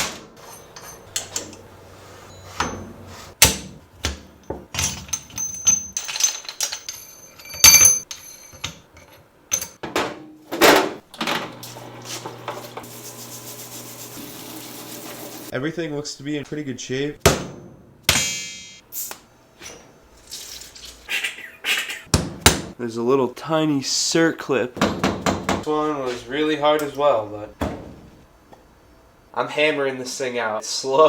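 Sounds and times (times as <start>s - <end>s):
hand tools clinking on metal: 0.4s - 9.8s.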